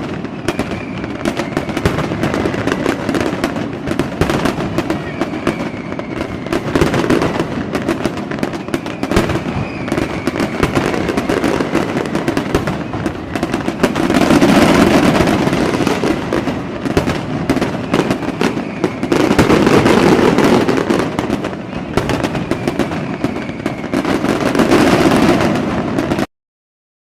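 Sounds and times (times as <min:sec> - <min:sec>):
fireworks bangs and crackling: 0:00.0 - 0:26.3
faint falling whistle: 0:00.4 - 0:03.0, 0:04.8 - 0:06.6, 0:08.6 - 0:11.2, 0:17.9 - 0:19.6, 0:22.4 - 0:24.4.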